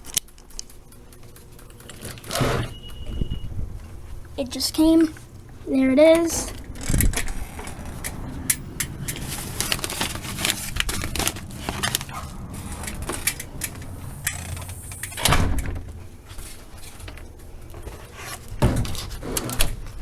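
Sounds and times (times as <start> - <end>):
handling clicks and rustles: 0.0 - 20.0
heavy thud: 12.6 - 16.4.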